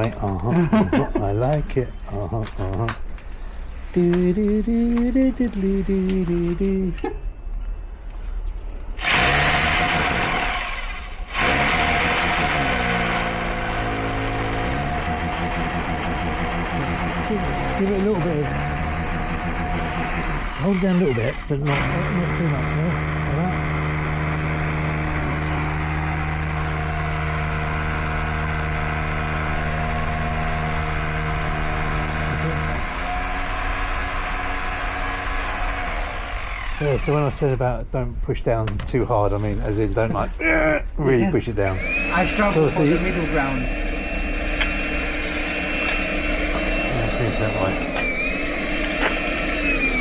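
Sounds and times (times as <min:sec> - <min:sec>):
power drill boring: 0:00.0 - 0:01.8, 0:08.9 - 0:37.5, 0:41.6 - 0:50.0.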